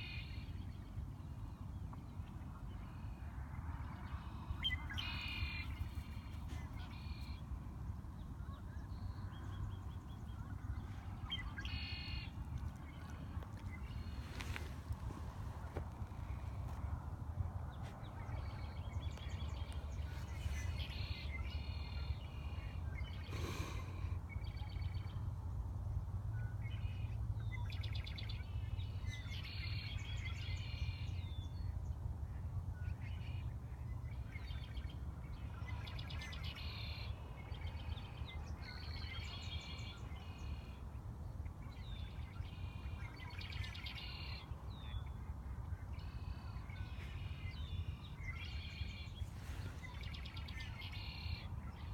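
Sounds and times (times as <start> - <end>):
songbirds singing: 0.0 - 17.0, 17.6 - 51.9
steady low rumble: 0.4 - 27.8.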